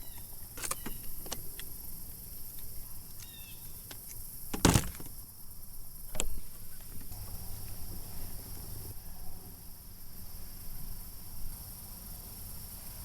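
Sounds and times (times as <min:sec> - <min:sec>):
clicks and knocks on kayak: 0:00.2 - 0:01.7, 0:03.9 - 0:05.2, 0:06.1 - 0:07.2
loud thump: 0:04.5 - 0:05.2.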